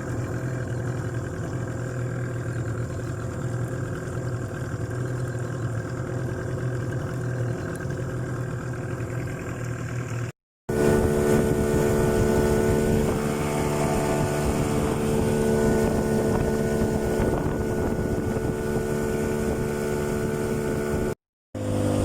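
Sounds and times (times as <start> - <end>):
engine running steadily: 0.0 - 22.0
wind on microphone: 10.7 - 21.2.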